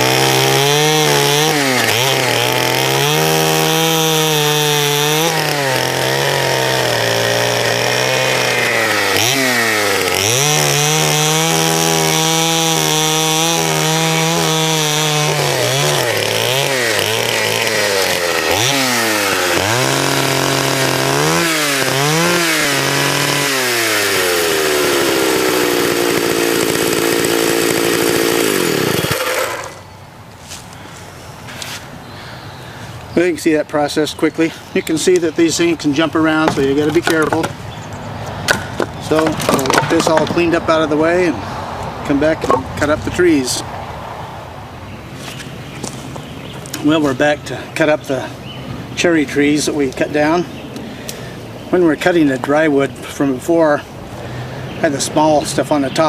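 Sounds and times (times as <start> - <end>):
chainsaw cutting logs: 0.0 - 29.9, 34.8 - 37.6, 38.4 - 41.4.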